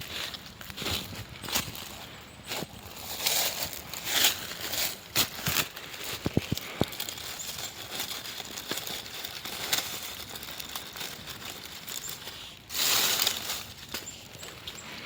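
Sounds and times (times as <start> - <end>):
crinkling rustles: 0.0 - 15.0.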